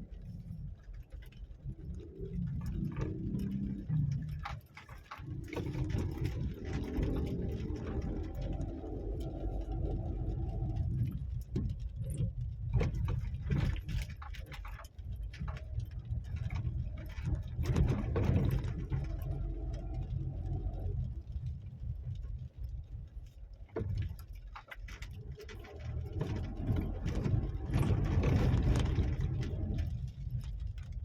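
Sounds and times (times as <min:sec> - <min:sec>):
vehicle engine humming: 0:00.0 - 0:13.8
low rumble: 0:00.0 - 0:31.0
knocks and clatter: 0:02.4 - 0:22.4, 0:23.7 - 0:31.0.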